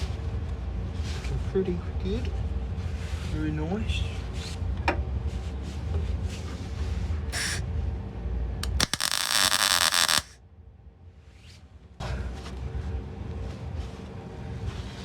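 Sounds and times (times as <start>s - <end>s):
welder buzzing crackle: 7.3s - 7.6s, 8.6s - 10.4s.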